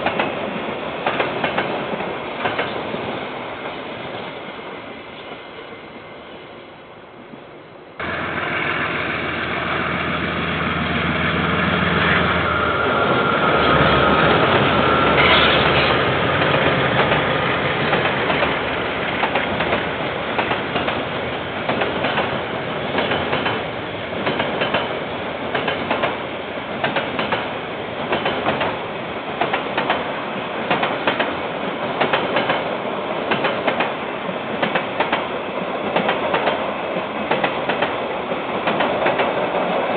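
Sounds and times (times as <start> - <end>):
train wheels clickety-clack: 0.0 - 3.2, 12.9 - 39.9
diesel locomotive engine: 0.0 - 39.9.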